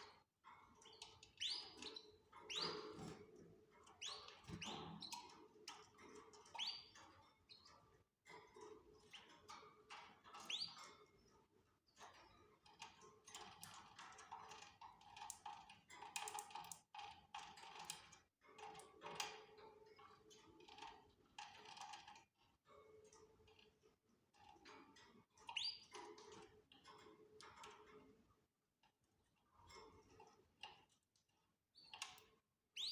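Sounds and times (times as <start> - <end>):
canary chirps: 0.7 - 3.2, 3.8 - 5.4, 6.2 - 7.8, 10.3 - 10.8, 25.4 - 26.0, 31.7 - 32.9.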